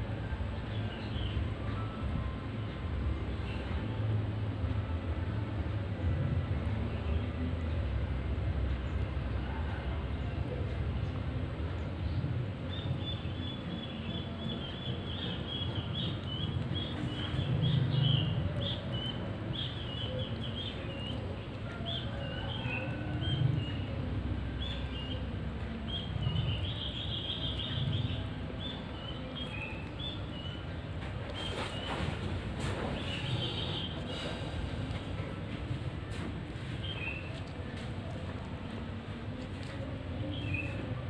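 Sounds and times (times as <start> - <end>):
small birds chirping: 12.7 - 31.9.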